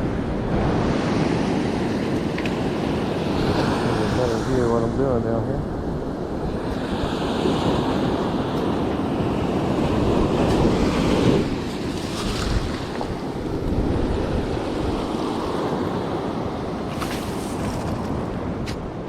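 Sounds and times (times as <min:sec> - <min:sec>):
surf washing in: 0:00.0 - 0:19.0
wind buffeting microphone: 0:00.0 - 0:19.0.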